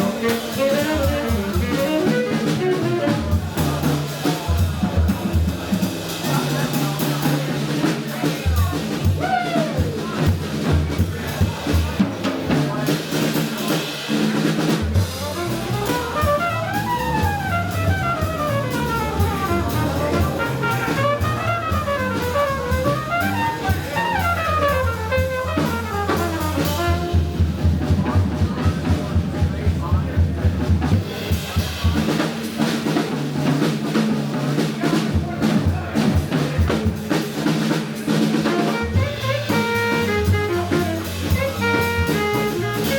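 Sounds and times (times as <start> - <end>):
walking bass line: 0.0 - 3.9, 14.8 - 31.2, 38.5 - 42.9
drum kit with rimshots: 0.0 - 42.9.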